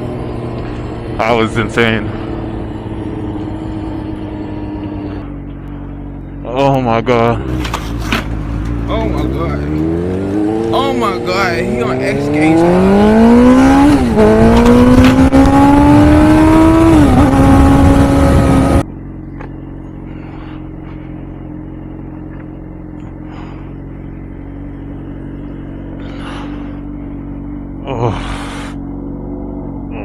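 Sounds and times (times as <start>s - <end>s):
motorcycle engine accelerating: 0.0s - 30.0s
steady low hum: 16.8s - 30.0s.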